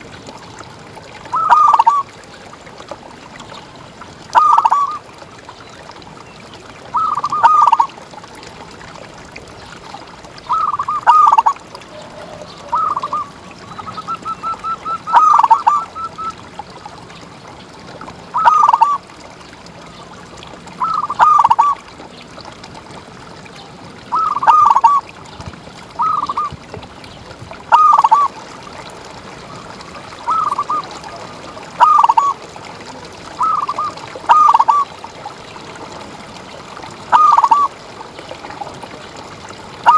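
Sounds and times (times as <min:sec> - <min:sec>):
dove cooing: 0:07.0 - 0:07.9, 0:10.5 - 0:16.3, 0:24.1 - 0:25.0, 0:27.7 - 0:28.3, 0:30.1 - 0:32.3, 0:33.4 - 0:34.8, 0:37.1 - 0:37.7.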